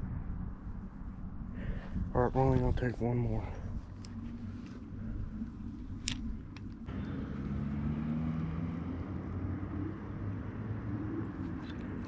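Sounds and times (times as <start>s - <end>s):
vehicle engine hum: 0.0s - 12.0s
small clicks: 6.0s - 6.9s.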